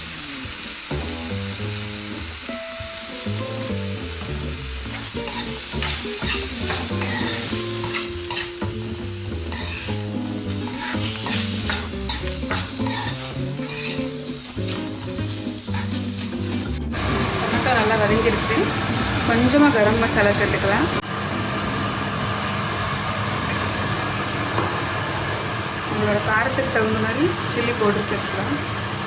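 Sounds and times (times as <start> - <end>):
scraping strokes in a pan: 0.0 - 20.4
onion and tomato sizzling in oil: 0.0 - 21.0.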